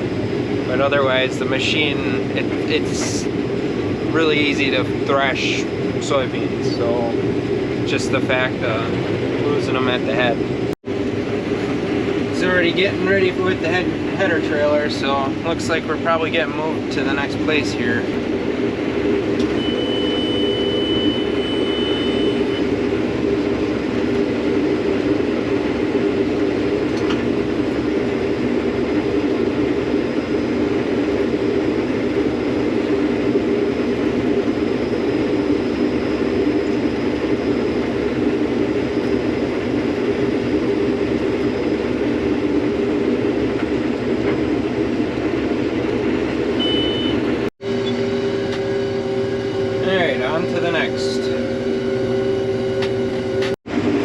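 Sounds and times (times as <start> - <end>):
combine harvester engine running: 0.0 - 54.0
high steady tone: 19.4 - 22.8, 46.5 - 53.4.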